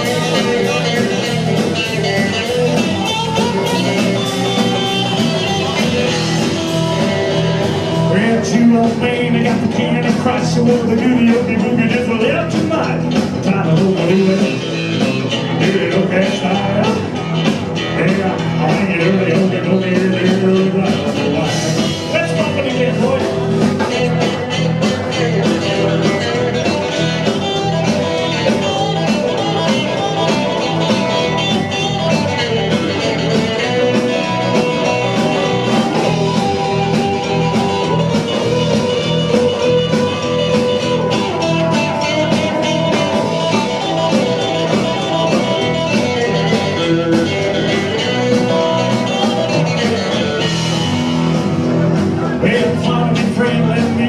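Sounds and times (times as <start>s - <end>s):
guitar: 0.0s - 54.0s
rock and roll band playing: 0.0s - 54.0s.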